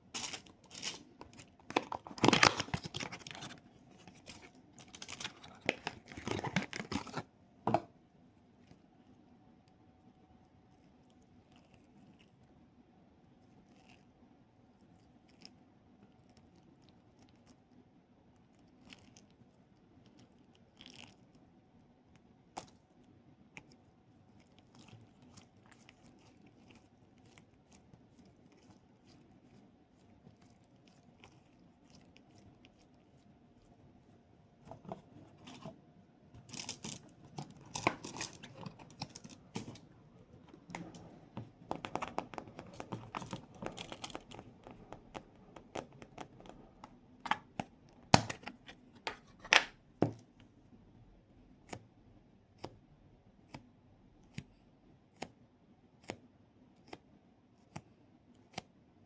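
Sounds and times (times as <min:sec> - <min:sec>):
plastic packaging crinkling: 0:00.2 - 0:07.3, 0:36.4 - 0:41.0, 0:41.7 - 0:45.2.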